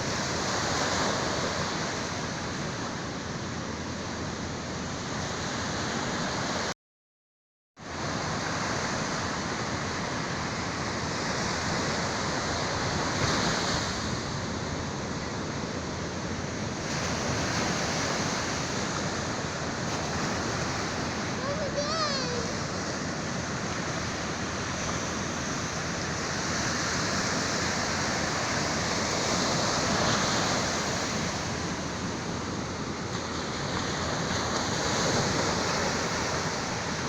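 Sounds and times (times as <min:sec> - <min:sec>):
sea waves breaking on shore: 0:00.0 - 0:06.7, 0:07.8 - 0:37.0.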